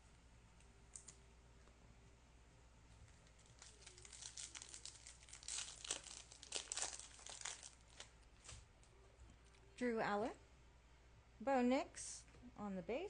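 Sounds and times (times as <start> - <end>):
foil wrapper crinkling: 3.1 - 8.6.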